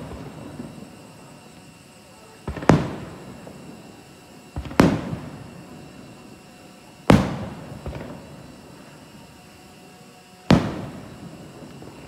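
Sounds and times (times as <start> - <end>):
firework shells booming: 0.0 - 1.6, 2.4 - 6.4, 7.0 - 8.8, 10.5 - 12.0.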